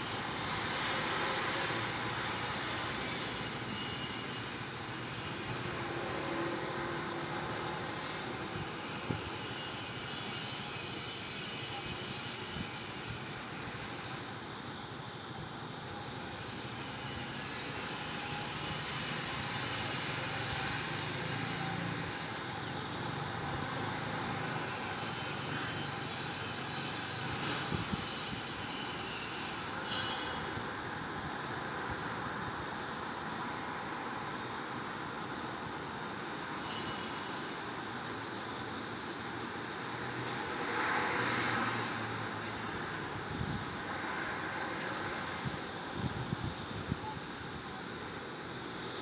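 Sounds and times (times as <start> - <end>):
city background rumble: 11.2 - 49.0.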